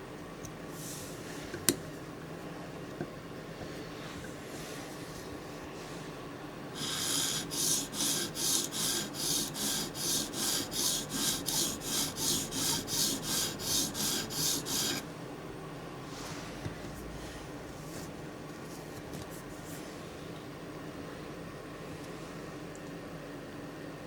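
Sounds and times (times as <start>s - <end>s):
knife scraping on sharpening stone: 6.8s - 15.0s.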